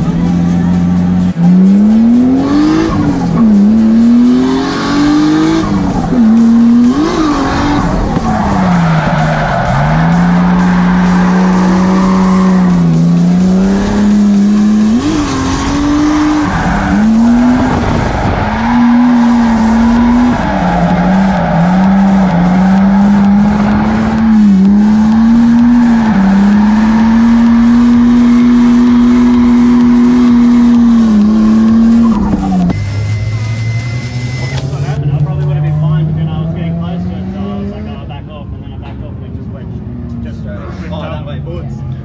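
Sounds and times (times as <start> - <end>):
car engine revving: 0.0 - 38.4
tyres squealing: 5.4 - 32.7.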